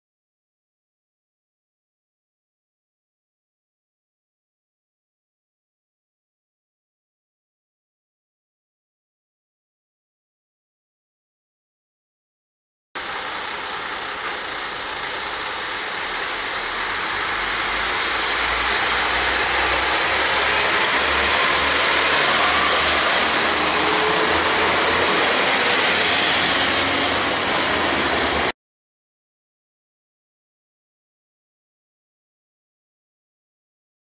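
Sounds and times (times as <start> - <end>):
diesel engine rumble: 13.0 - 28.5
train wheel and rail noise: 13.0 - 28.5.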